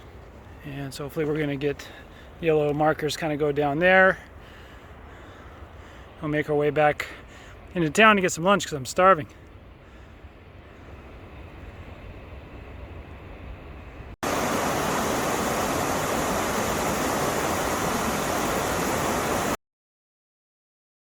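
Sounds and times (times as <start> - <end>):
outdoor background noise: 0.0 - 19.6
rushing water: 14.2 - 19.6.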